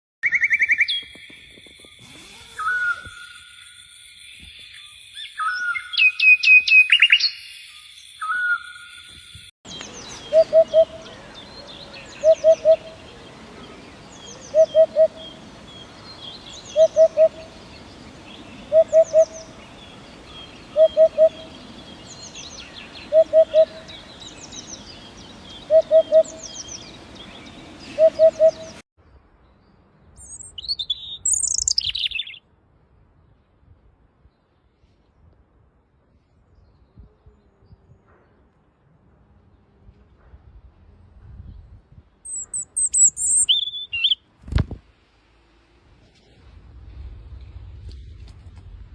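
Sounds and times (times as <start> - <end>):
shrill whistled bird calls: 0.2 - 11.1, 30.2 - 32.4, 42.3 - 44.2
faint high bird chirps: 0.2 - 15.4, 30.2 - 32.4, 42.3 - 44.2
high twittering bird song: 0.2 - 28.8, 30.2 - 32.4, 42.2 - 44.2
hoopoe calling: 9.7 - 28.8.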